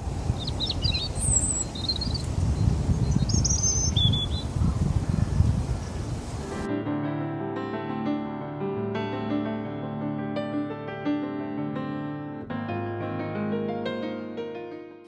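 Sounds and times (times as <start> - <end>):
small birds chirping: 0.0 - 6.7
wind buffeting microphone: 0.0 - 6.7.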